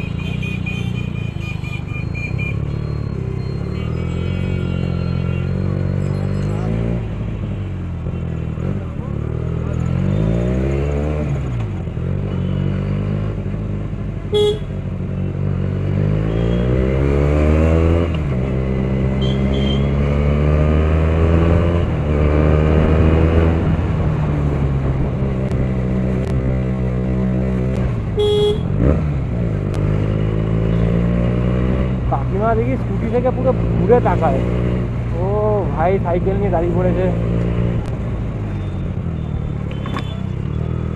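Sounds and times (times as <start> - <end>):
motorcycle engine revving: 8.0 - 40.9
vehicle horn toots: 14.3 - 14.7, 19.2 - 19.9, 28.2 - 28.8.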